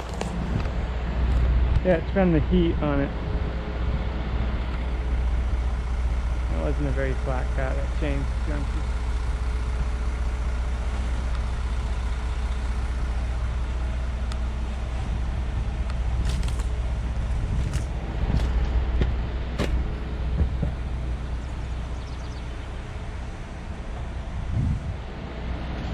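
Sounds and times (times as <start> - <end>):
truck engine droning: 0.0 - 25.9
sharp knocks: 17.6 - 20.8.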